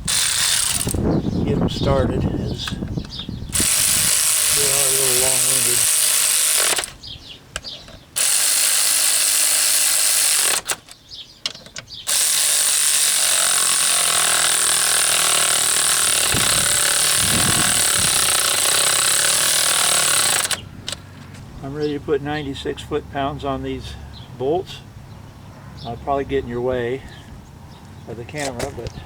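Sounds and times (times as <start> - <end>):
power tool running bolts in: 0.0 - 1.1, 3.5 - 7.0, 8.2 - 10.9, 12.1 - 21.0.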